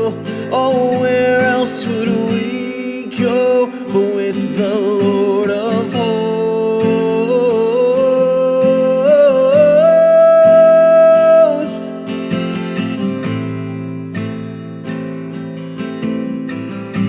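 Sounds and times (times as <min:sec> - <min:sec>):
person singing: 0:00.0 - 0:12.1
acoustic guitar strumming: 0:00.0 - 0:17.0.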